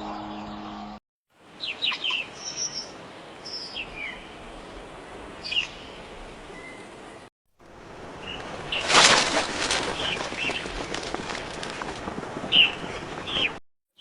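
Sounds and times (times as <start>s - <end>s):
low hum: 0.0s - 1.0s
faint outdoor hiss: 1.4s - 9.0s
small birds chirping: 1.6s - 7.3s, 12.5s - 14.0s.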